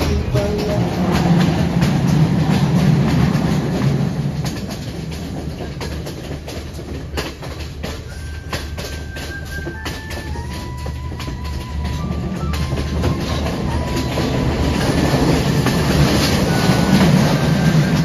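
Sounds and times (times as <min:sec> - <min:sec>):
music: 0:00.0 - 0:02.6, 0:07.6 - 0:18.0
train wheels rumbling: 0:00.0 - 0:18.0
wheel clicks over rail joints: 0:00.0 - 0:18.0.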